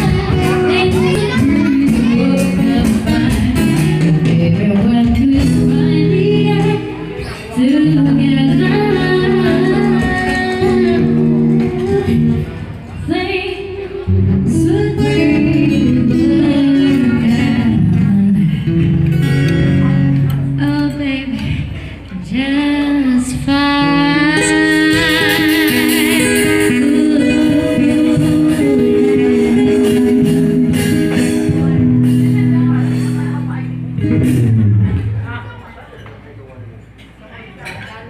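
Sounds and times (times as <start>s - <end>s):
acoustic guitar accompaniment: 0.0s - 36.1s
singer holding long notes: 22.6s - 32.0s.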